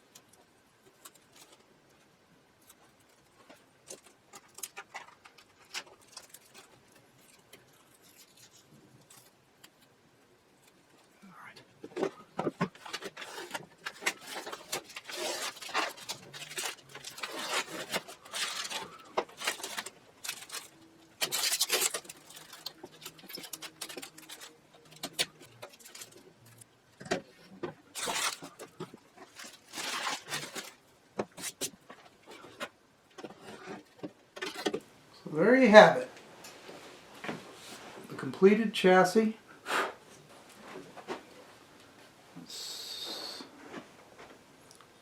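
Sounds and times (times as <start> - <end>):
rubbing and scraping at workbench: 12.5 - 24.3.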